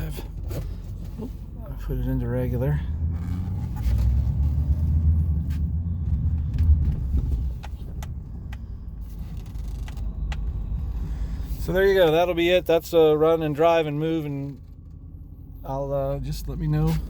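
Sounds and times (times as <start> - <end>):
pickup truck engine rumble: 0.0 - 17.0
sharp clicks and rattles: 6.0 - 10.9.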